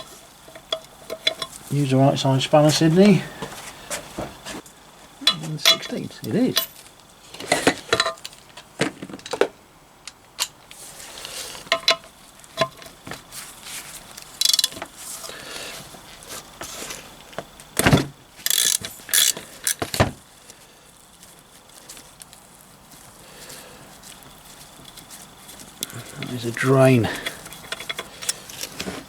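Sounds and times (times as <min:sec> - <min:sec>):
spanner clinking on metal plug: 0:05.2 - 0:06.8.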